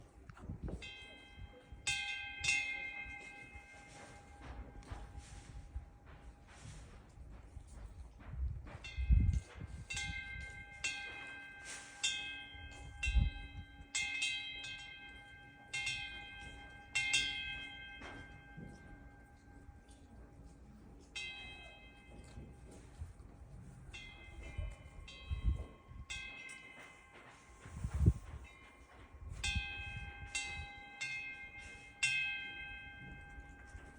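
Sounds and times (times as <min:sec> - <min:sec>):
wind rumble on microphone: 0:00.0 - 0:02.6, 0:04.4 - 0:10.8, 0:12.6 - 0:13.8, 0:22.2 - 0:26.3, 0:27.2 - 0:30.8
wind bell ringing: 0:00.4 - 0:33.9.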